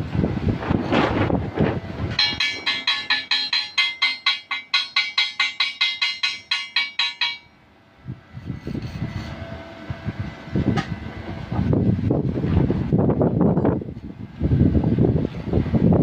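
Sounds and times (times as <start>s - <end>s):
wind rumble on microphone: 0.0s - 2.3s, 8.0s - 16.0s
rapid metal strikes on steel: 2.2s - 7.6s.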